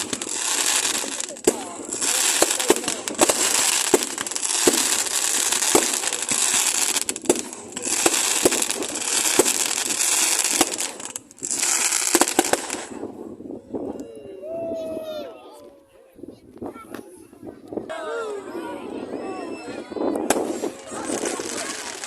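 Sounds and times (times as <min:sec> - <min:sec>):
fireworks crackling and popping: 0:00.0 - 0:13.9, 0:20.0 - 0:22.0.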